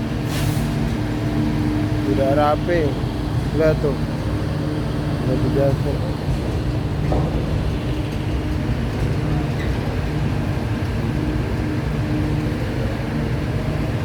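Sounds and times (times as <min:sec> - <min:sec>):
heavy machinery droning: 0:00.0 - 0:14.0.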